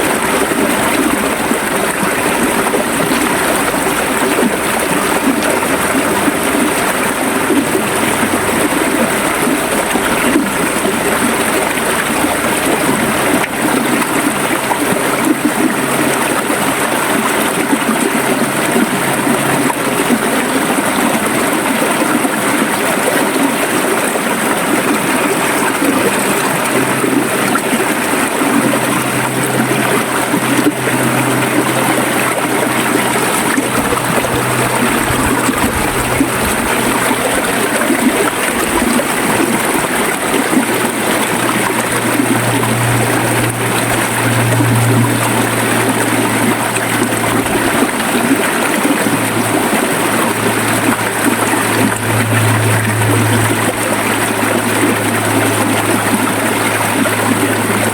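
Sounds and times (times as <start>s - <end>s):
river water gurgling over stones: 0.0s - 57.9s
low steady hum: 24.9s - 57.9s.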